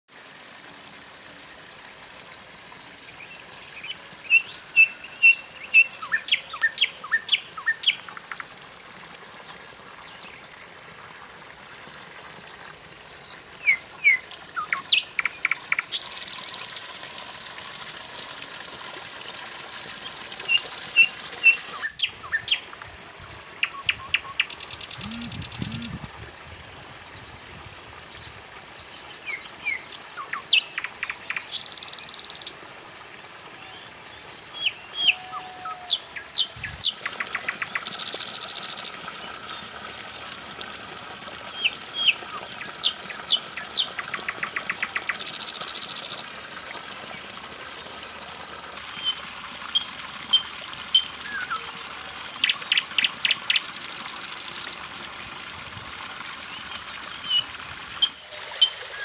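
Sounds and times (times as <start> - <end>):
water pouring from a spout: 0.1 - 59.0
small birds chirping: 24.4 - 26.0.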